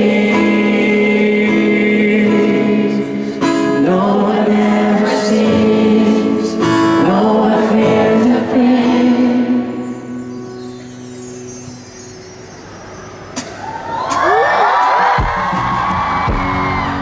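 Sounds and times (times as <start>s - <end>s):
person singing: 0.0s - 9.9s
guitar: 0.0s - 17.0s.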